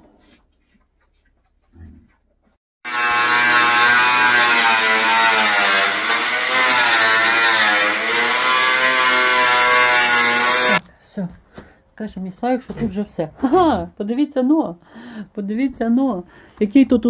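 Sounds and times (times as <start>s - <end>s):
power tool motor buzzing: 2.9s - 10.8s.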